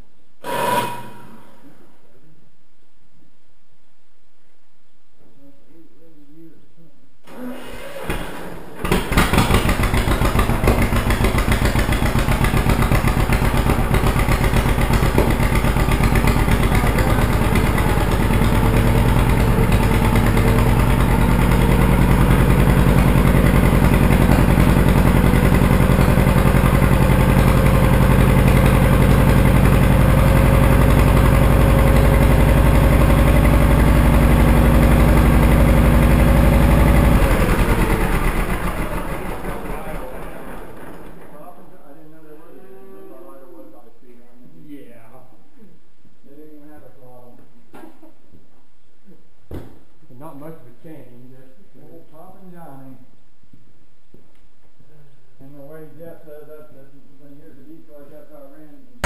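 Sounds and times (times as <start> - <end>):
tractor engine running: 8.8 - 41.3.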